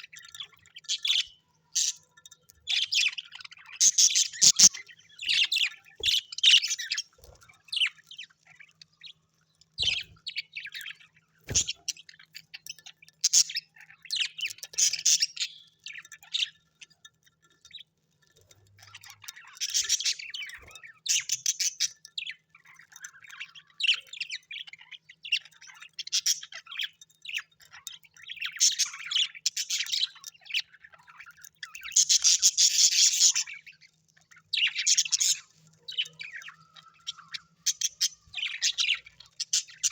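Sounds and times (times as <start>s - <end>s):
small birds chirping and squawking: 0.0s - 39.9s.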